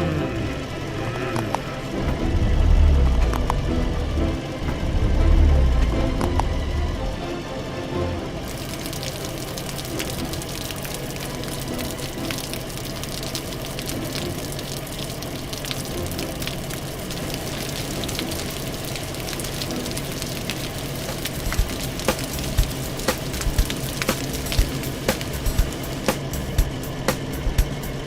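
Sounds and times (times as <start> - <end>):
low steady hum: 0.0 - 28.0
hose spraying water: 8.4 - 28.0.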